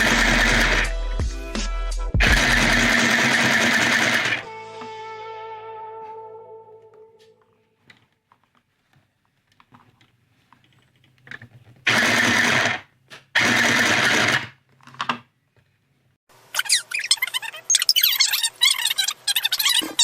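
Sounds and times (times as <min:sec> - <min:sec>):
toy sewing machine running: 0:00.0 - 0:00.9, 0:02.2 - 0:04.4, 0:11.9 - 0:12.8, 0:13.4 - 0:14.6.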